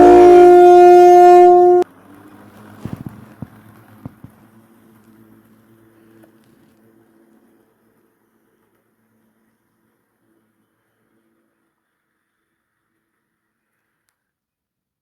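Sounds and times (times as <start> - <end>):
faint hum: 0.0 - 1.8
two-tone train horn: 0.0 - 1.8.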